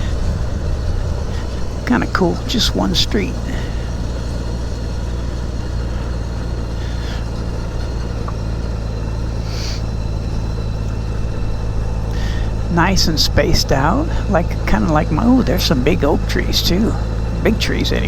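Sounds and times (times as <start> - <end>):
wind noise: 0.0 - 4.9
motorcycle engine running: 0.0 - 18.0
road noise: 0.0 - 18.0.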